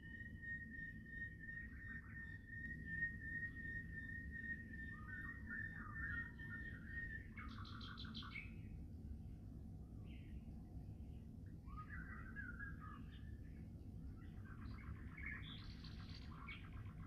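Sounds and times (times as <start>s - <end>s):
small birds singing: 0.0s - 17.0s.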